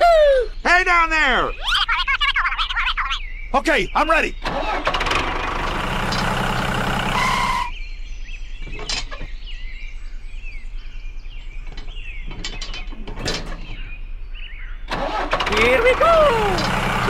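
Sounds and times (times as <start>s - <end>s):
birds chirping: 0.0s - 17.0s
loud mechanical noise with hum: 4.4s - 7.7s, 11.4s - 14.1s, 14.9s - 17.0s.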